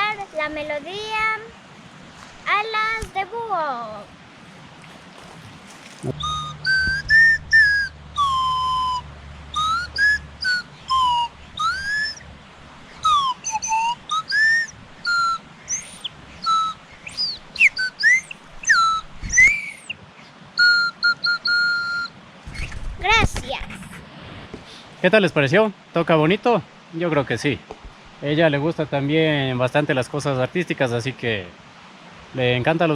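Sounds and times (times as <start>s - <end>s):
whistled flute notes sliding: 6.0s - 12.3s, 12.9s - 19.9s, 20.6s - 22.1s.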